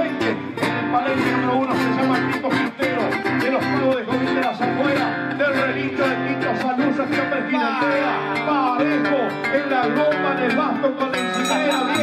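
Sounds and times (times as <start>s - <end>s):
guitar strumming: 0.0s - 12.0s
picked guitar melody: 0.0s - 12.0s.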